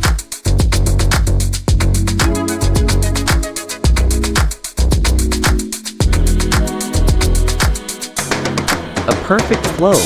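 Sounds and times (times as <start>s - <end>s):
deep kick drum: 0.0s - 7.8s
electronic dance music: 0.0s - 10.0s
quick hi-hat ticks: 0.0s - 10.0s.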